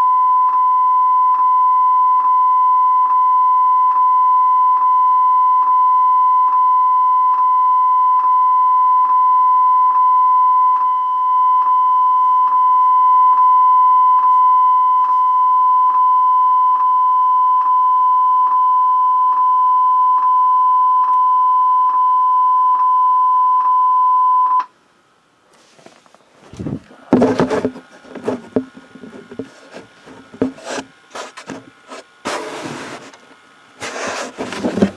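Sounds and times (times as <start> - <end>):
faint scraping and rubbing: 25.6 - 34.9.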